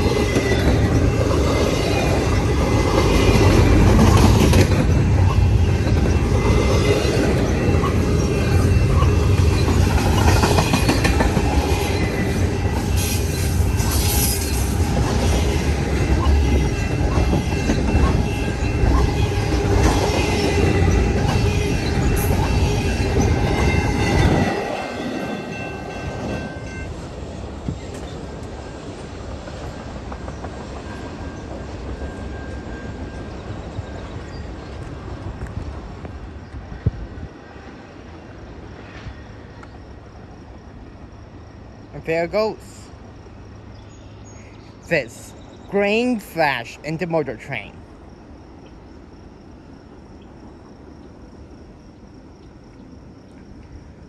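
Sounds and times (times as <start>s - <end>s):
train wheels rumbling on rail: 0.0s - 46.8s
high wheel squeals: 4.5s - 26.9s.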